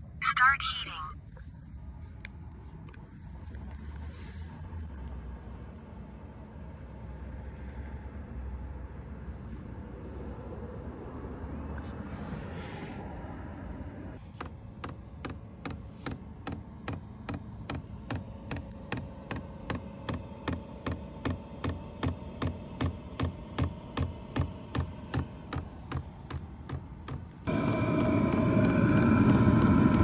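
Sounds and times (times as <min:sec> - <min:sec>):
blower fan humming: 0:16.3 - 0:30.0.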